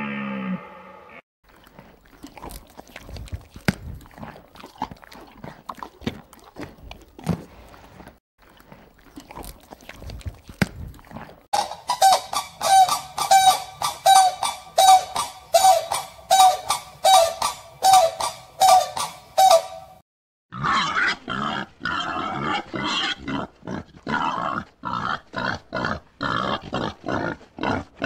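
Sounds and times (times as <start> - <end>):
honking animal calls: 11.6 - 20.0.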